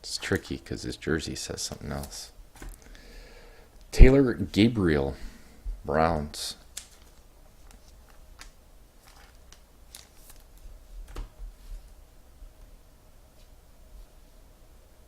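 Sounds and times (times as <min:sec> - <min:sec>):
low room hum: 0:00.0 - 0:15.0
cards clicking and rustling: 0:06.7 - 0:11.3.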